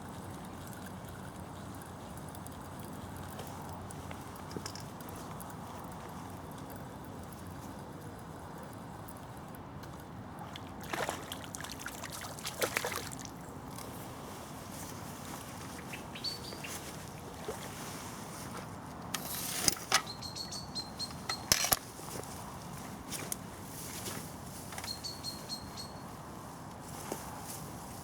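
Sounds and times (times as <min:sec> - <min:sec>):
water splashes: 0:10.4 - 0:13.4
river water flowing: 0:10.4 - 0:13.8
high bird chirps: 0:15.8 - 0:16.8, 0:20.0 - 0:21.6, 0:24.8 - 0:26.0.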